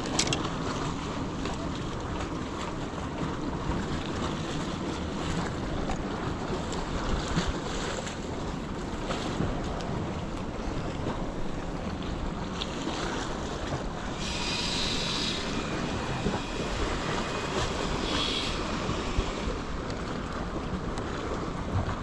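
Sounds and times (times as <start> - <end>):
surf washing against rocks: 0.0 - 22.0
wind buffeting microphone: 0.0 - 22.0
brief high hisses: 14.1 - 19.5.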